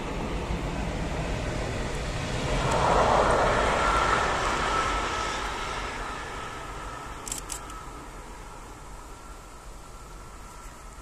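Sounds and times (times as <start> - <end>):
thin steady whine: 0.0 - 11.0.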